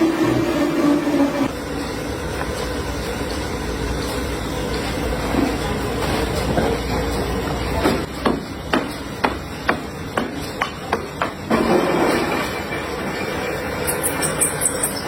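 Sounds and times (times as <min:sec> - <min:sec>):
factory machinery running: 0:00.0 - 0:15.0.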